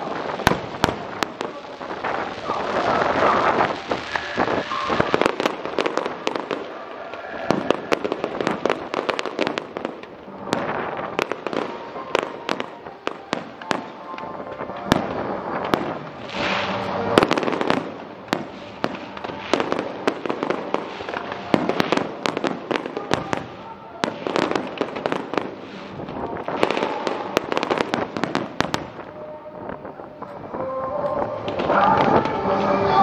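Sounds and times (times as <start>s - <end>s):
fireworks bangs and pops: 0.0s - 33.0s.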